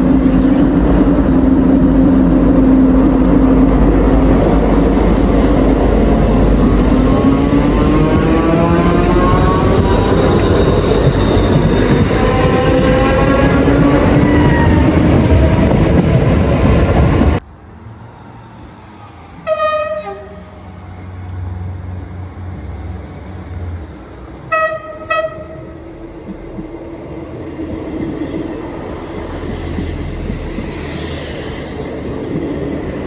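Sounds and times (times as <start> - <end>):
train approaching rumble: 0.0 - 17.4, 18.7 - 33.0
train passing with whine: 0.0 - 33.0
train horn blasts: 19.4 - 20.6, 24.5 - 25.7.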